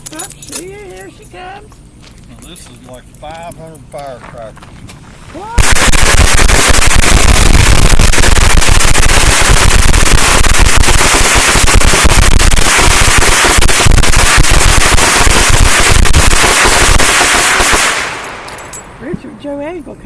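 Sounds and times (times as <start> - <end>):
firecrackers crackling: 5.4 - 19.1.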